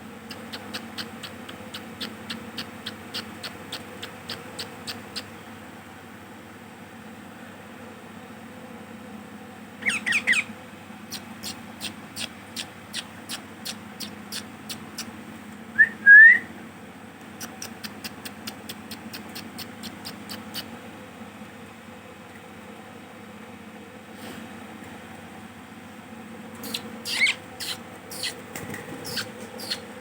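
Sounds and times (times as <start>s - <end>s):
steady low hum: 0.0s - 30.0s
parrots harsh calls: 9.8s - 10.5s, 26.6s - 28.4s.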